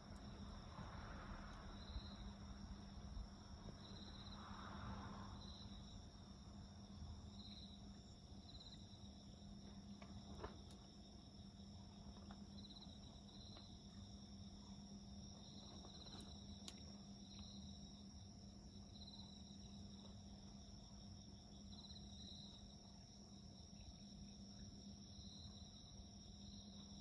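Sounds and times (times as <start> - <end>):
crickets chirring: 0.0 - 27.0
wood fire crackling: 9.6 - 11.0.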